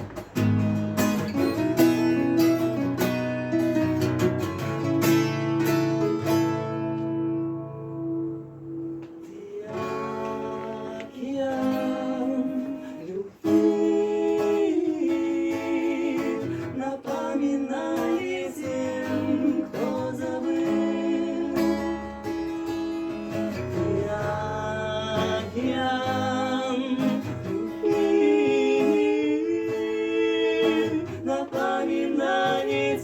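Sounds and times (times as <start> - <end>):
acoustic guitar strumming: 0.0 - 33.0
person singing: 9.1 - 22.5, 23.6 - 33.0.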